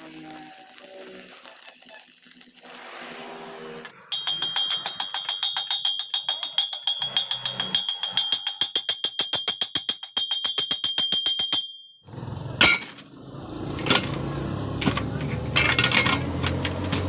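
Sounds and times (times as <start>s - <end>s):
welding arc crackling hiss: 0.0s - 5.2s
fast ticking percussion: 4.1s - 11.6s.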